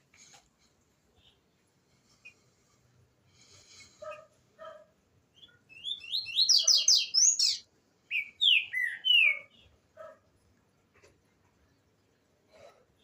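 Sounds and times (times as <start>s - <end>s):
bird singing whistled notes: 5.4s - 9.6s.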